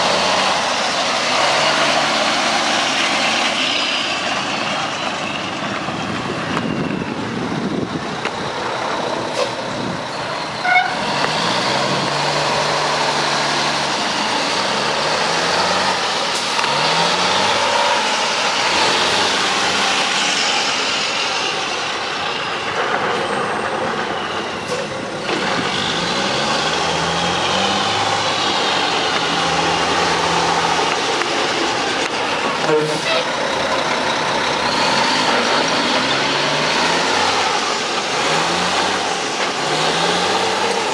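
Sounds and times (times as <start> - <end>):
diesel truck engine revving: 0.0 - 40.9.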